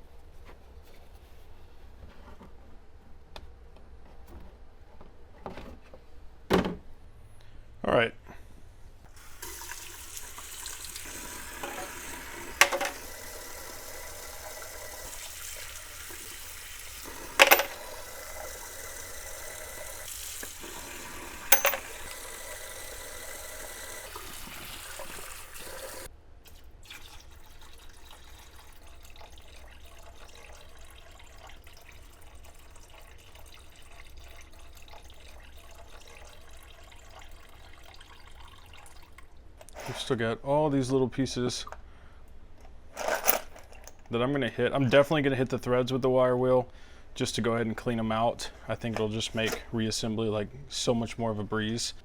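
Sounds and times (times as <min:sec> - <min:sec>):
wire wheel brushing steel washers: 0:11.5 - 0:24.0.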